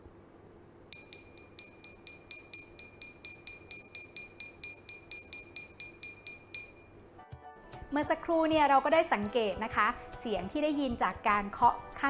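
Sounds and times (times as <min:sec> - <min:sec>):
stick tapping water glass: 0:01.0 - 0:07.0.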